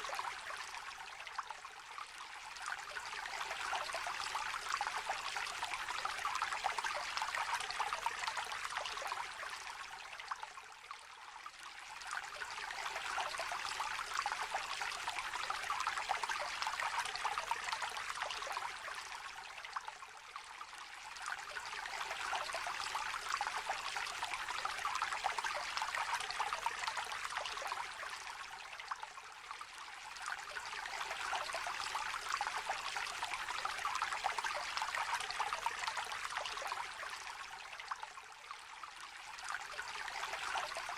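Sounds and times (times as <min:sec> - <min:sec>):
stream babbling over stones: 0:20.7 - 0:40.9.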